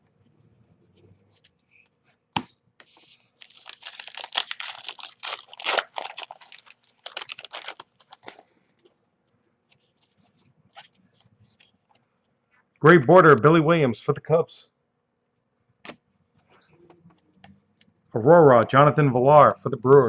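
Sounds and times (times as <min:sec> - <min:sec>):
foil wrapper tearing and crinkling: 0:03.4 - 0:08.4.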